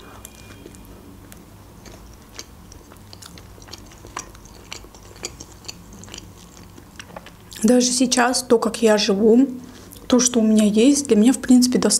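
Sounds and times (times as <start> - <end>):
person chewing and crunching: 0.0 - 7.7.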